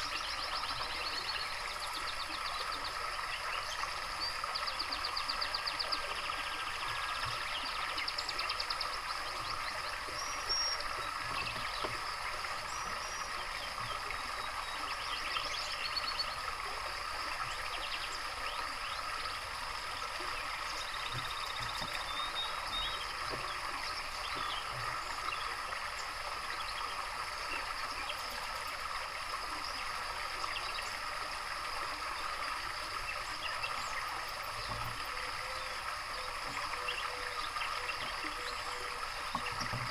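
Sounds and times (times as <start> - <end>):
songbirds trilling and whistling: 0.0 - 28.9, 31.8 - 39.9
water trickling: 0.0 - 39.9.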